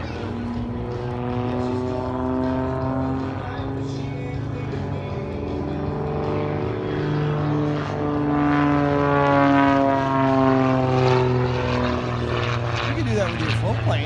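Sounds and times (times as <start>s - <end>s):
propeller airplane flying past: 0.0s - 14.0s.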